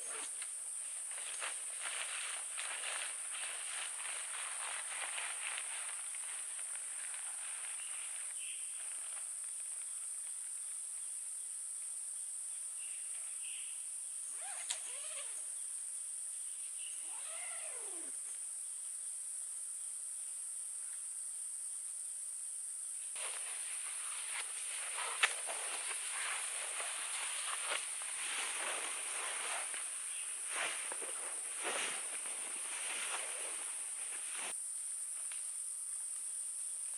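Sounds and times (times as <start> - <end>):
forest insects droning: 0.0 - 36.9
wild animal calls falling in pitch: 17.0 - 18.2.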